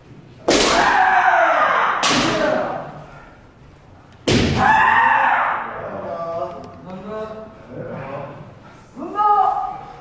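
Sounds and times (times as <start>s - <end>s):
person shouting: 9.0s - 9.8s.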